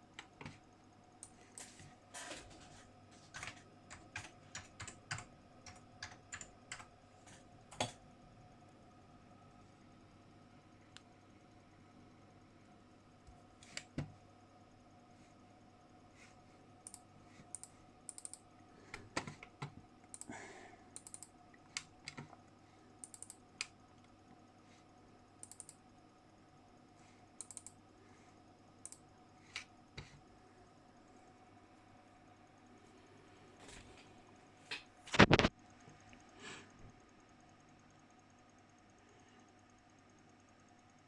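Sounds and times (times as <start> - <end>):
faint electrical hum: 0.0 - 41.0
computer keyboard keystrokes: 3.2 - 8.0, 16.8 - 18.4, 19.2 - 20.3, 21.0 - 22.4, 23.0 - 23.7, 25.4 - 25.8, 27.4 - 27.8, 28.8 - 29.7.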